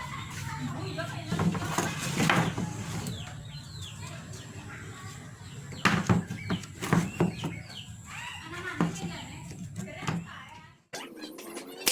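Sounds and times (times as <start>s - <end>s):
birds chirping: 0.0s - 10.8s
sharp knocks and clatters: 5.8s - 7.8s.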